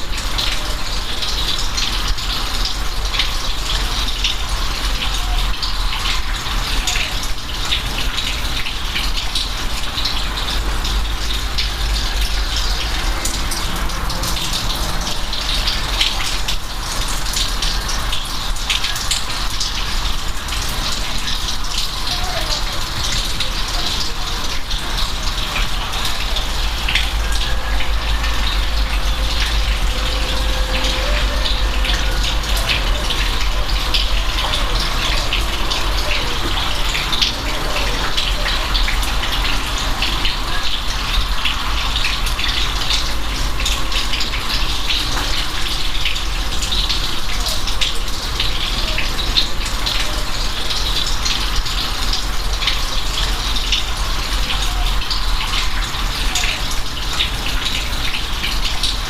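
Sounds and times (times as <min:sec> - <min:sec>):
raindrops ticking: 0:00.0 - 0:59.0
steady rain hiss: 0:00.0 - 0:59.0
deep steady rumble: 0:25.9 - 0:34.5.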